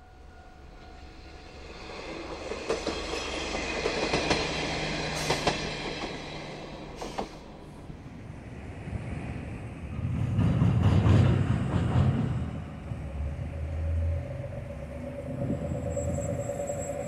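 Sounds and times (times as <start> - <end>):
diesel railcar passing: 0.0 - 17.0.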